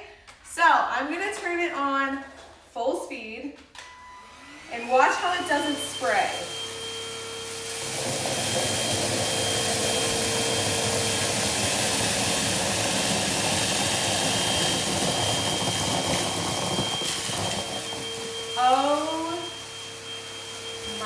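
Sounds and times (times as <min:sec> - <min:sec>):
vacuum cleaner whine: 0:03.8 - 0:21.0.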